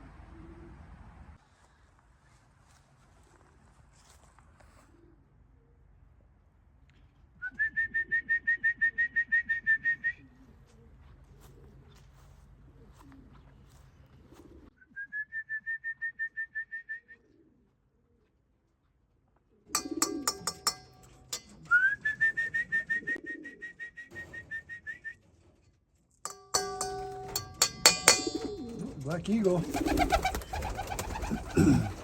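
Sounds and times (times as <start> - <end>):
pigeons cooing: 14.2 - 14.7, 19.7 - 23.8, 26.6 - 32.0
sharp clattering: 19.8 - 22.9, 26.3 - 32.0.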